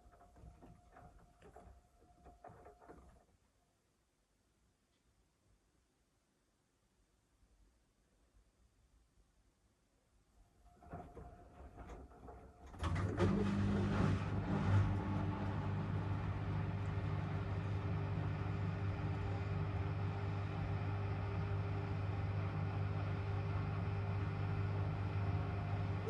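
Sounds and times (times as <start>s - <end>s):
washing machine motor hum: 10.7s - 26.0s.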